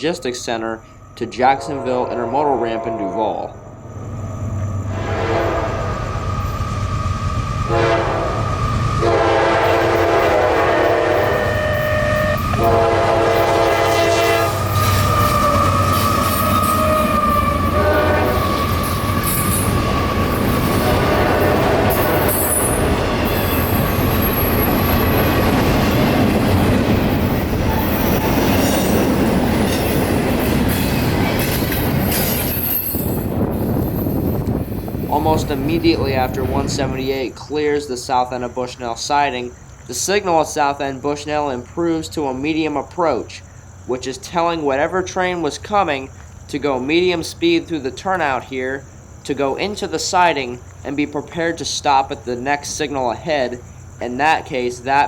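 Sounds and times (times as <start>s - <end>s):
train cars rumbling and rattling: 0.0s - 43.9s
high wheel squeal: 0.8s - 35.6s
train horn blasts: 1.4s - 3.6s, 4.9s - 6.5s, 7.7s - 18.8s, 20.4s - 23.6s.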